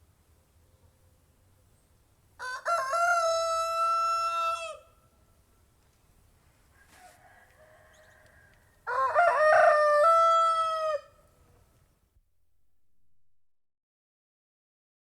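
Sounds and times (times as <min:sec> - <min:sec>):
rooster crowing: 0:02.4 - 0:05.0, 0:06.7 - 0:11.4.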